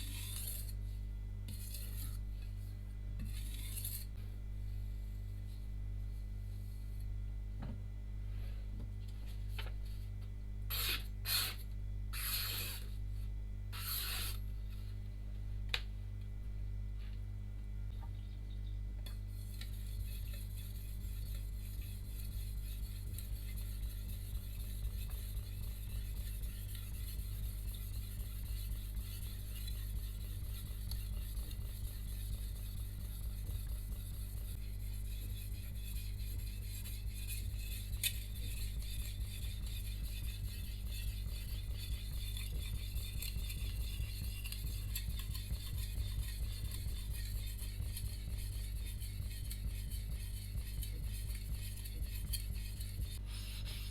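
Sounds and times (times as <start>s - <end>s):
blade scraping on whetstone: 0.0s - 0.8s, 3.2s - 4.1s, 10.7s - 11.6s, 12.2s - 12.9s, 13.8s - 14.4s, 19.4s - 53.2s
steady low hum: 0.0s - 53.9s.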